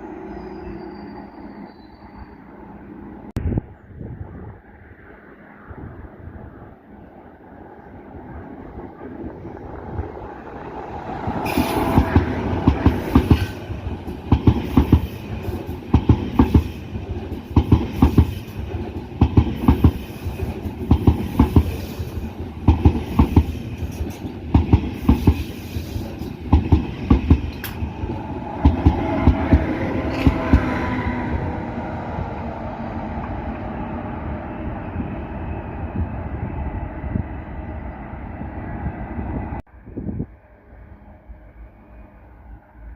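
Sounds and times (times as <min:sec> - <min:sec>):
train rumble: 0:00.0 - 0:42.9
train wheels clattering on rails: 0:11.2 - 0:31.0.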